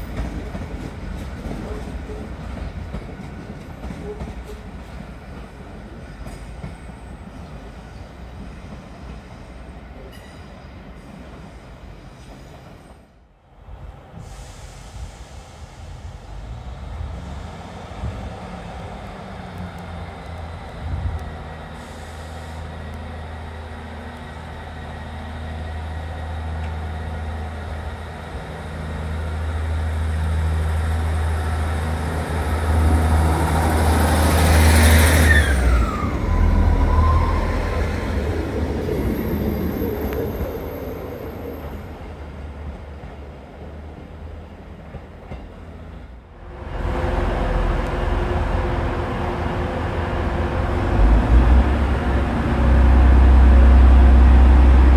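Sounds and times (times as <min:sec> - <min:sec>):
train engine drone: 0:00.0 - 0:54.9.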